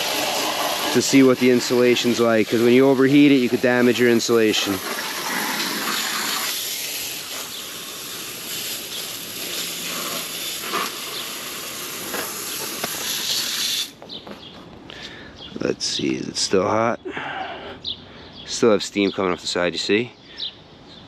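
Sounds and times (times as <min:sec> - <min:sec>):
hose water spraying on metal: 0:00.0 - 0:14.0.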